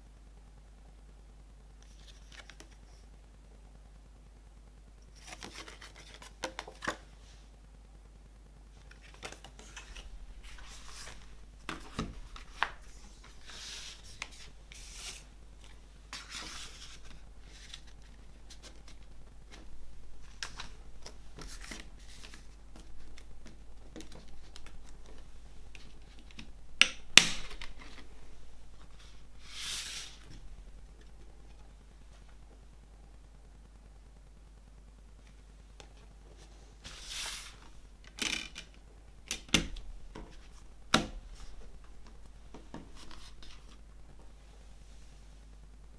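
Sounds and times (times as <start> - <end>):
paper and plastic rustling: 5.2 - 7.1, 8.8 - 26.6, 39.8 - 44.3.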